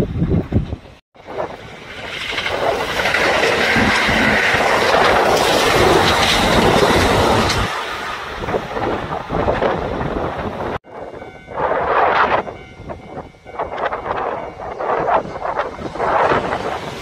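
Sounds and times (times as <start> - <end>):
train rushing past: 0.2 - 17.0
train wheel clacks: 1.4 - 10.0.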